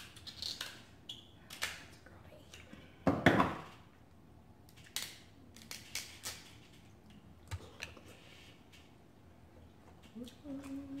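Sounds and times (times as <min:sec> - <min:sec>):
seafood shells cracking: 0:00.0 - 0:00.9.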